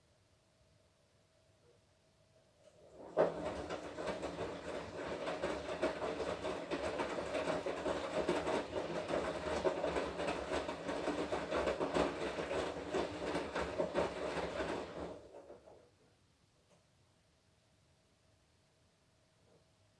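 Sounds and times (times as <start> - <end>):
washing machine tumbling laundry: 2.6 - 16.1.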